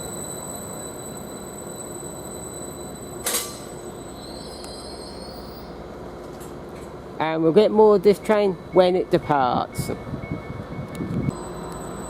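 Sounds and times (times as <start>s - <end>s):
sharp hiss or clunk: 3.2s - 3.7s.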